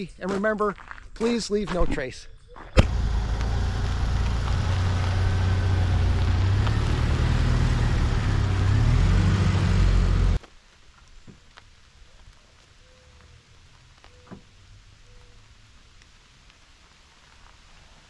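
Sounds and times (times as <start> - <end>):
car engine running and revving: 2.8 - 10.4
faint outdoor rustle: 10.4 - 18.0.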